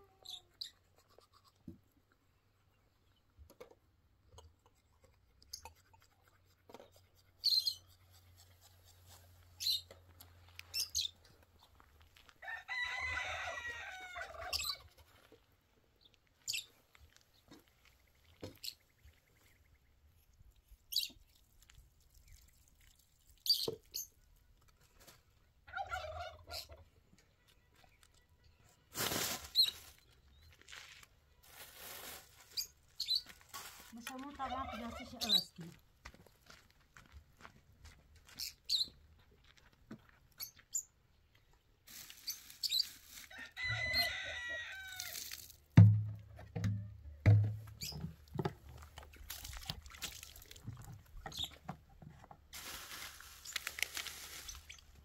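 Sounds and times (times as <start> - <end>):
rooster crowing: 12.4 - 14.6, 43.4 - 45.2.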